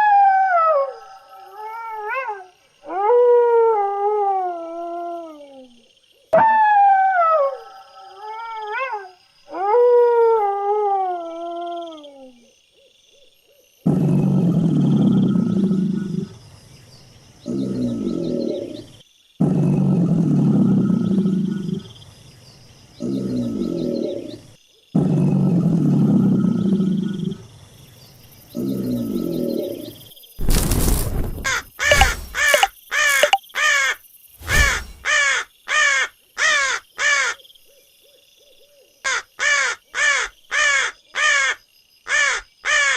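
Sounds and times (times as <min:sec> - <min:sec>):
crow cawing: 0:31.4 - 0:37.4, 0:39.1 - 0:42.9.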